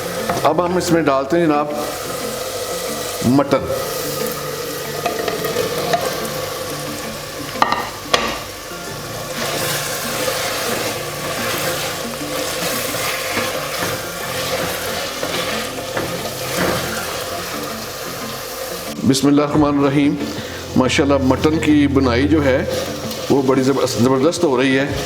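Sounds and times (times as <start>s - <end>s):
meat sizzling in hot oil: 0.0s - 25.0s.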